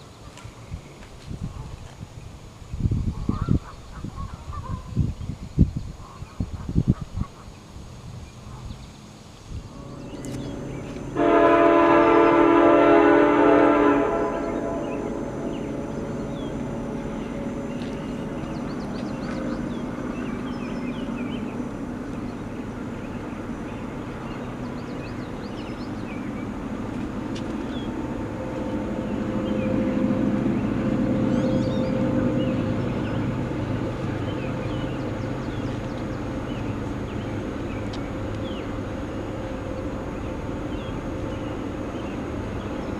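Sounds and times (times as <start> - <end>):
train rumbling past: 7.5 - 42.9
locomotive air horn blast: 9.7 - 18.5, 27.8 - 33.5.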